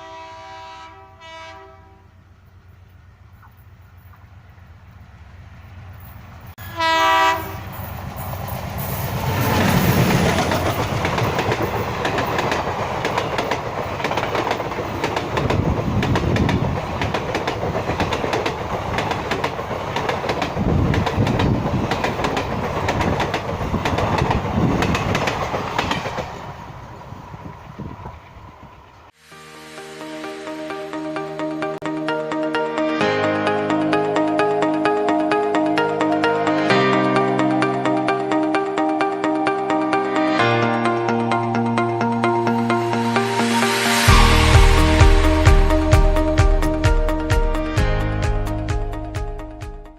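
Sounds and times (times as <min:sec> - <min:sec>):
locomotive horn blast: 0:00.0 - 0:02.2, 0:06.6 - 0:07.8
train wheels clattering on rails: 0:07.4 - 0:29.0.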